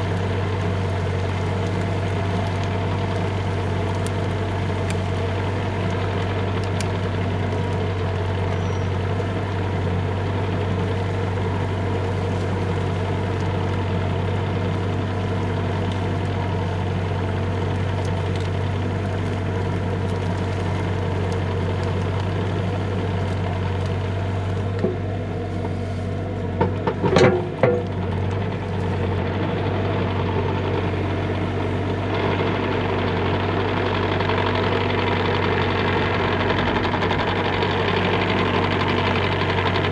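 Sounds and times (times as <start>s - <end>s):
mini excavator diesel engine: 0.0s - 39.9s
short squeal: 8.6s - 8.9s.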